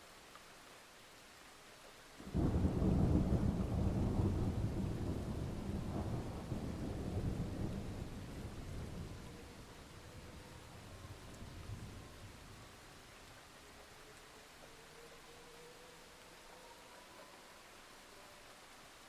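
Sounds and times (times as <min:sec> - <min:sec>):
faint steady hiss: 0:00.0 - 0:19.0
thunder rumbling: 0:02.2 - 0:12.7.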